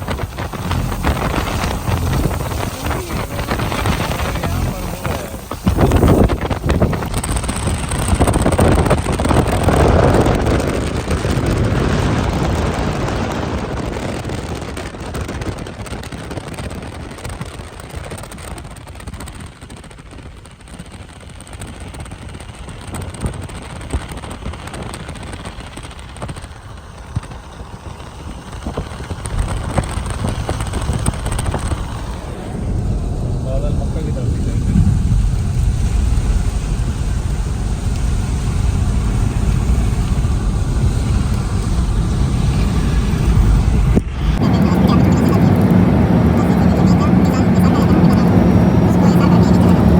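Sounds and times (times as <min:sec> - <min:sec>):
rain: 0:00.0 - 0:49.9
traffic on wet road: 0:00.0 - 0:49.9.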